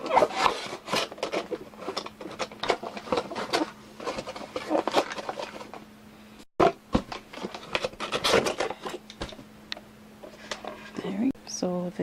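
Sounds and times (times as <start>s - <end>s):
packaging rustling and clicking: 0.0s - 5.8s, 6.6s - 9.4s.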